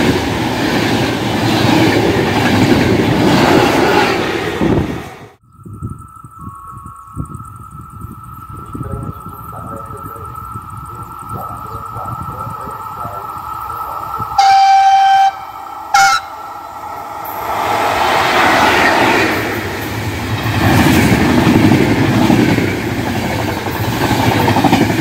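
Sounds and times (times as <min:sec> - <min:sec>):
train rushing past on rails: 0:00.0 - 0:05.4, 0:09.0 - 0:25.0
train horn: 0:14.4 - 0:16.5.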